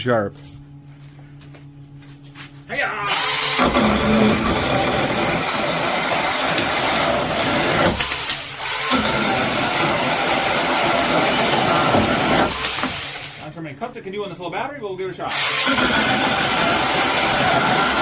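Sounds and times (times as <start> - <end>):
electric motor whine: 3.0 - 13.4, 15.3 - 18.0
chain cutting through wood: 3.1 - 13.4, 15.3 - 18.0.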